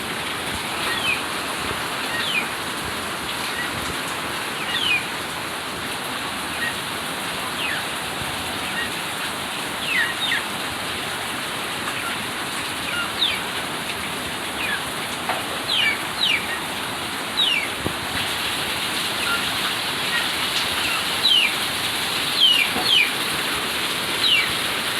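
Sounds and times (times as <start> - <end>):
steady rain falling: 0.0 - 24.9
birds chirping: 0.7 - 2.7, 4.4 - 5.2, 6.4 - 10.6, 11.8 - 13.6, 14.4 - 17.8, 18.7 - 24.9.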